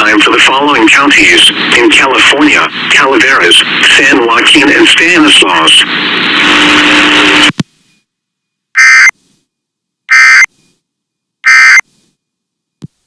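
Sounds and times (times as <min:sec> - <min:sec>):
loud hiss of noise: 0:05.7 - 0:07.6.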